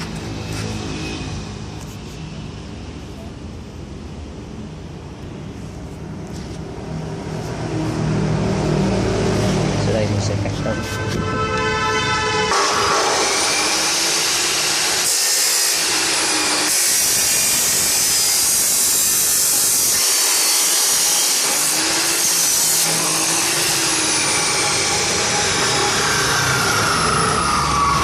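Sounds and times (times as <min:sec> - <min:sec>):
cut-off saw grinding through metal: 0:12.5 - 0:28.0.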